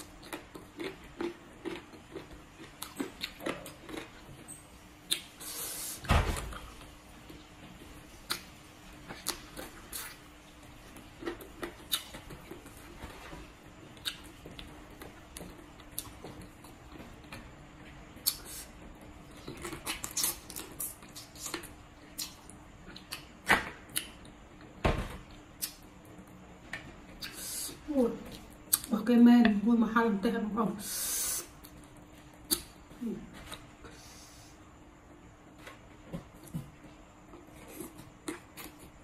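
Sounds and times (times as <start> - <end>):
crunchy chewing: 0.0 - 17.5, 18.2 - 24.4, 37.2 - 39.0
faint steady hum: 0.0 - 39.0.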